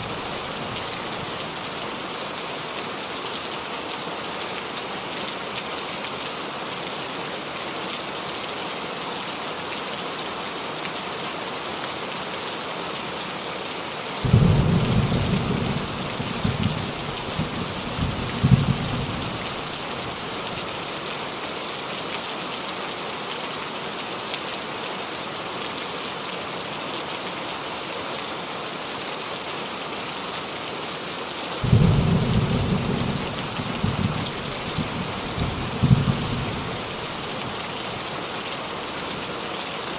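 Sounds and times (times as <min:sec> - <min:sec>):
rain falling on roof: 0:00.0 - 0:39.9
thunder rumbling: 0:31.6 - 0:37.0.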